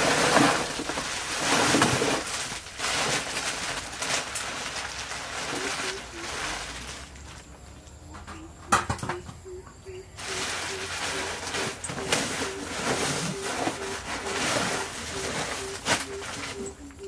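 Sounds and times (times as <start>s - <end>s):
bird repeating low call: 8.0s - 17.0s.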